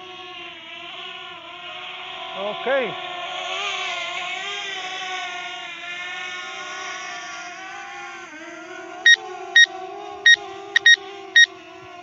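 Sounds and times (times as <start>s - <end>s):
short electronic beeps: 9.1s - 9.7s, 10.3s - 11.5s.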